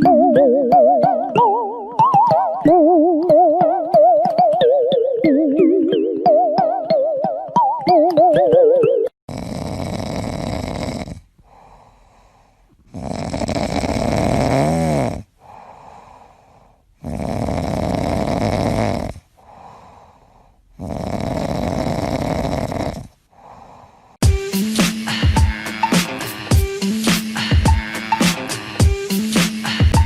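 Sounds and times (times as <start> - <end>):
whistling tone in snore: 9.3 - 11.2, 12.9 - 15.2, 17.0 - 19.2, 20.8 - 23.1
pet snoring: 9.3 - 11.7, 12.8 - 15.3, 17.0 - 19.3, 20.7 - 23.2.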